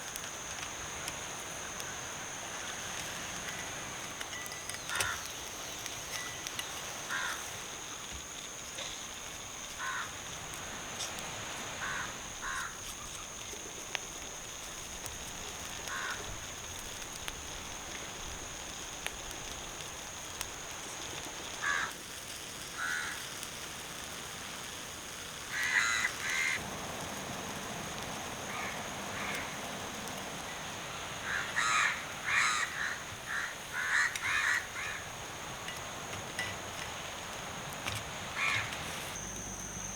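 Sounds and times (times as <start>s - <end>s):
crows cawing: 4.8s - 5.3s, 7.1s - 7.5s, 9.8s - 10.2s, 11.8s - 12.8s, 15.9s - 16.3s, 21.6s - 22.0s, 22.8s - 23.2s, 25.5s - 26.6s, 28.5s - 29.5s, 31.2s - 35.1s, 38.4s - 38.7s
steady high-pitched whine: 26.3s - 39.9s.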